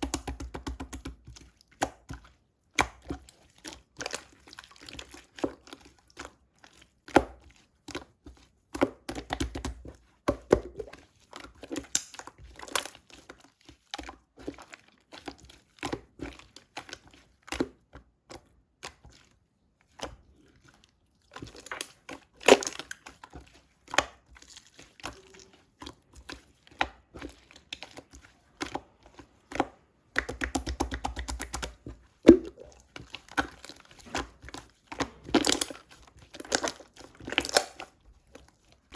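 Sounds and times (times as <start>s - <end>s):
slime squeezed by hand: 30.1s - 38.0s.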